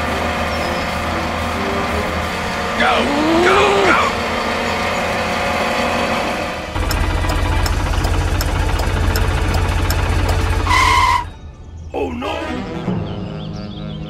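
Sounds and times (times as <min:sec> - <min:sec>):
tractor engine chugging: 0:00.1 - 0:11.3.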